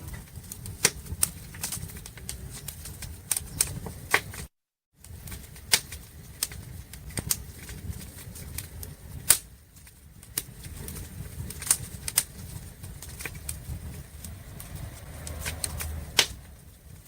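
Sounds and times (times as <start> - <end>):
wood fire crackling: 0.0 - 17.0
low rumble: 12.9 - 17.0.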